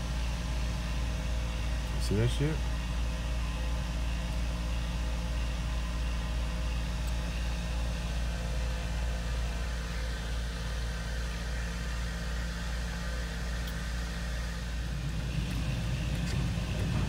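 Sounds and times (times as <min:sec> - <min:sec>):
car engine rumble: 0:00.0 - 0:17.0
road traffic: 0:06.5 - 0:17.0.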